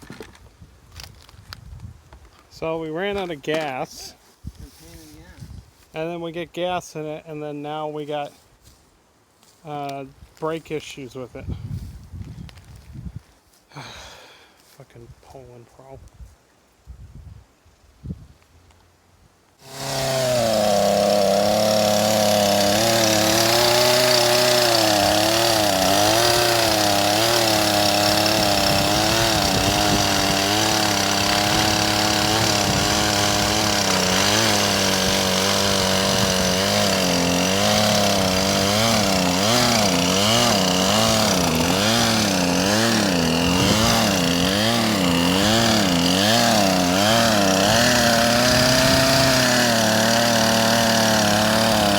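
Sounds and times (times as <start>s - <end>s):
chainsaw engine running: 19.6s - 51.9s.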